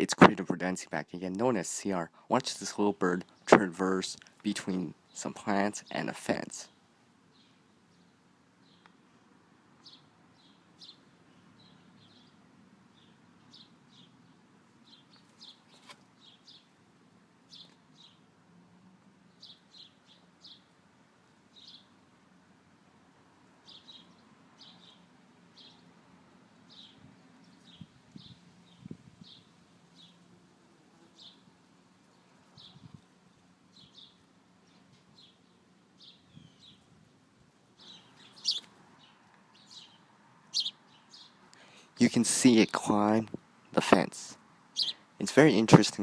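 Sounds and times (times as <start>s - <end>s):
small bird chirping: 9.8s - 16.8s, 17.5s - 18.3s, 19.3s - 20.7s, 21.5s - 22.0s, 23.6s - 25.9s, 26.7s - 30.2s, 31.1s - 36.9s, 37.8s - 41.6s, 44.7s - 45.1s.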